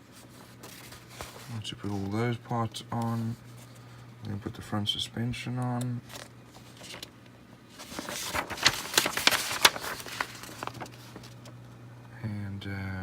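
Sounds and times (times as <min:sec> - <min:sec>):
paper rustling and crackling: 0:00.0 - 0:02.3, 0:06.0 - 0:11.6.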